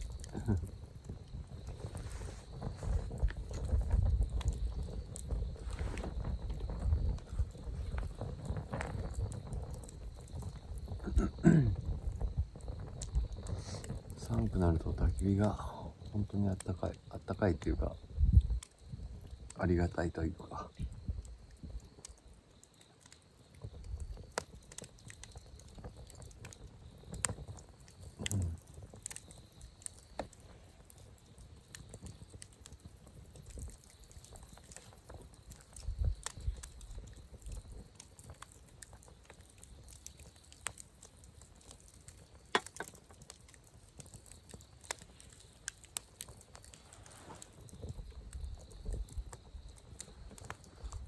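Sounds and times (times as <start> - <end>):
wood campfire crackling: 0.0 - 51.0
sharp pops: 42.5 - 43.0.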